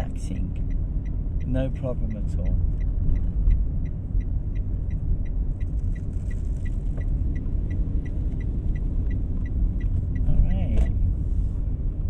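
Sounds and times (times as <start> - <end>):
engine and road rumble: 0.0 - 12.0
turn signal ticking: 0.0 - 12.0.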